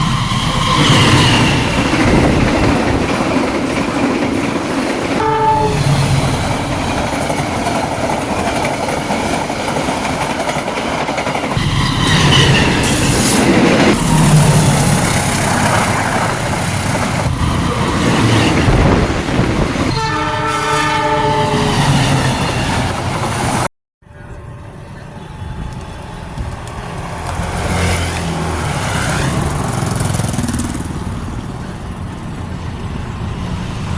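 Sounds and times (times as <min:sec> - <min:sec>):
train wheels rumbling and clattering: 0:00.0 - 0:05.2, 0:05.8 - 0:20.0, 0:25.3 - 0:33.9
train horn: 0:05.1 - 0:06.2, 0:19.4 - 0:22.3, 0:24.1 - 0:26.6.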